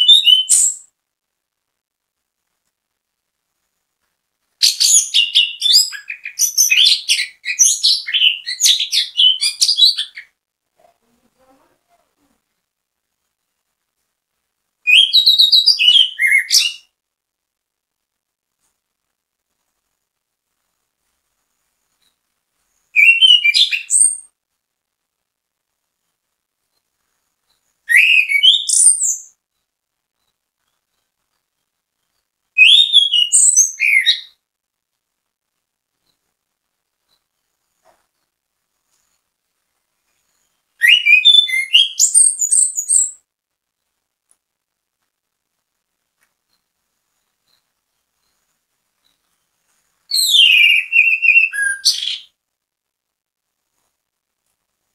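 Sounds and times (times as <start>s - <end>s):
thrush singing whistled notes: 14.9s - 17.0s, 22.9s - 24.3s, 27.9s - 29.4s, 32.6s - 34.4s, 40.3s - 43.2s, 50.1s - 52.3s.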